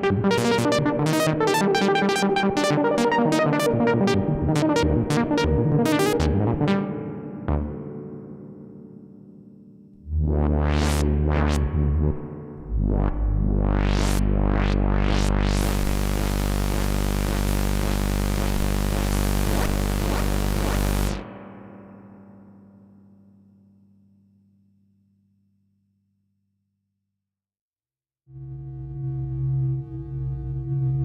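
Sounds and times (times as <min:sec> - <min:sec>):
deep synthesizer bass drone: 0:02.2 - 0:06.9, 0:10.0 - 0:21.3.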